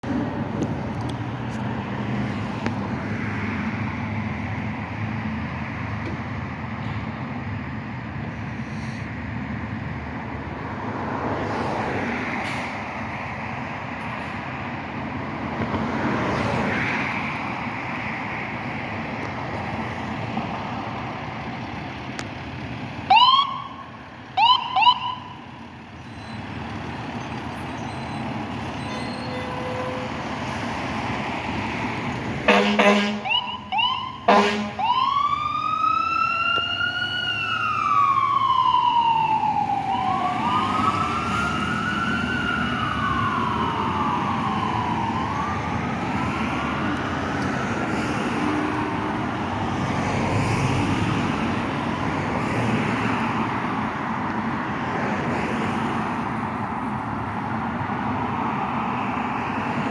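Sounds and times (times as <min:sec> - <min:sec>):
road traffic passing: 0:00.0 - 0:59.9
fire engine siren chirps: 0:22.9 - 0:47.4.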